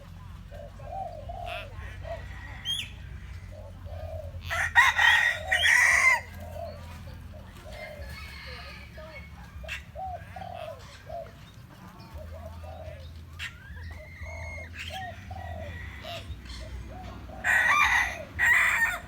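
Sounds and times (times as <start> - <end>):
rooster crowing: 4.4 - 6.4, 8.0 - 9.0, 17.3 - 19.0.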